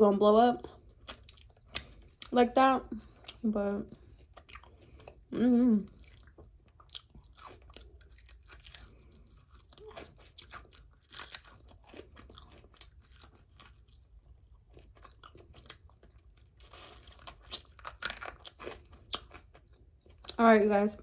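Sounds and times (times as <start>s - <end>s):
mouth chewing fried food: 0.6s - 2.4s, 3.0s - 20.4s.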